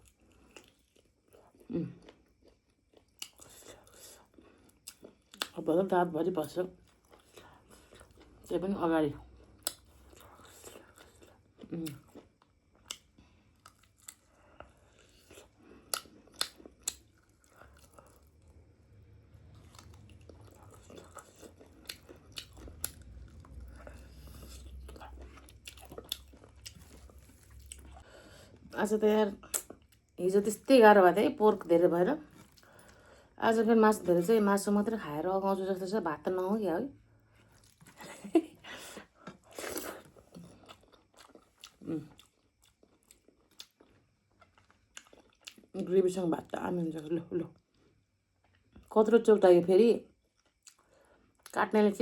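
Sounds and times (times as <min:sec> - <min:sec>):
person chewing meat: 0:00.0 - 0:05.6, 0:06.8 - 0:08.5, 0:09.2 - 0:28.7, 0:37.3 - 0:38.2, 0:39.1 - 0:45.7, 0:50.3 - 0:51.5
low hum: 0:17.5 - 0:29.4.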